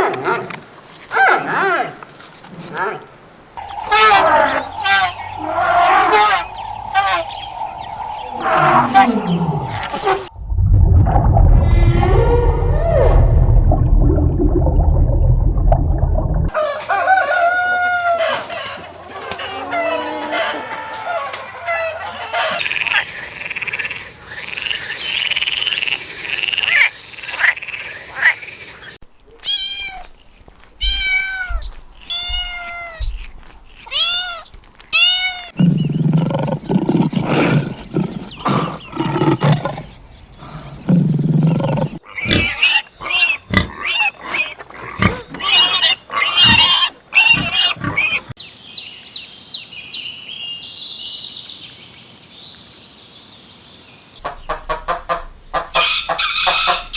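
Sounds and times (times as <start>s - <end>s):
arching animal calls: 3.6s - 10.3s, 41.5s - 48.4s
deep heavy animal calls: 3.6s - 10.3s, 35.6s - 48.4s
sharp animal clicks and calls: 3.6s - 10.3s, 42.0s - 48.4s.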